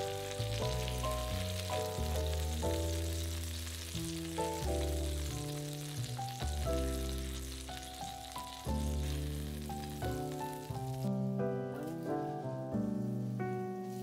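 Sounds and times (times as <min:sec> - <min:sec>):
chicken sizzling in oil: 0:00.0 - 0:11.2
background music with bass line: 0:00.0 - 0:13.9.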